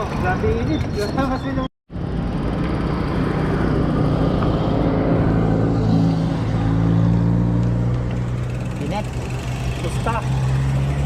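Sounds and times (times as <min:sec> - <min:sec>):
road noise rumble: 0:00.0 - 0:11.0
vehicle engine humming: 0:01.9 - 0:11.0.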